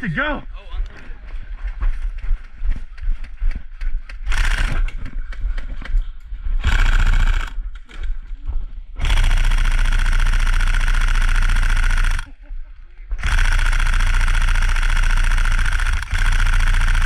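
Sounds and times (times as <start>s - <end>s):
airsoft rifle firing bursts: 4.2s - 5.1s, 6.6s - 8.1s, 9.0s - 12.3s, 13.2s - 17.0s.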